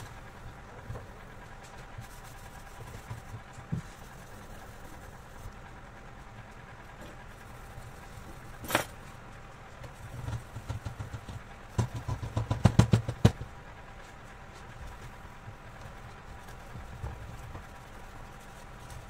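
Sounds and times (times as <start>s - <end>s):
irregular knocks and taps: 10.2s - 13.5s.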